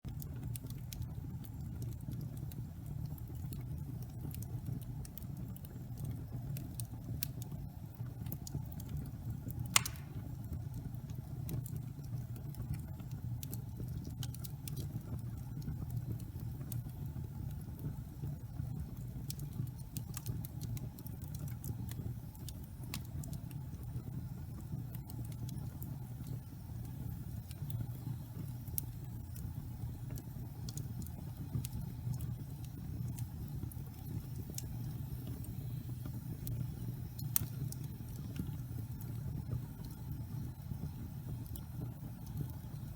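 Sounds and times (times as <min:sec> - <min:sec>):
fire crackling: 0:00.1 - 0:42.9
fire flames rumbling: 0:00.1 - 0:42.9
loud fire pop: 0:09.7 - 0:10.3.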